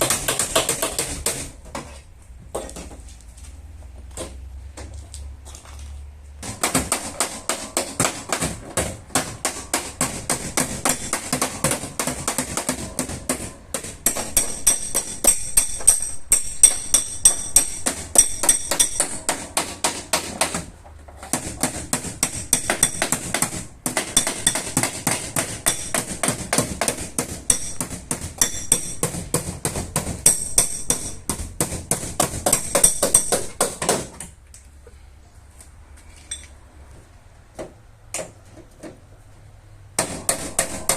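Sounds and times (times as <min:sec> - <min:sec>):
hammer tapping on sheet metal: 0:00.0 - 0:01.9, 0:06.4 - 0:34.3, 0:40.0 - 0:40.9.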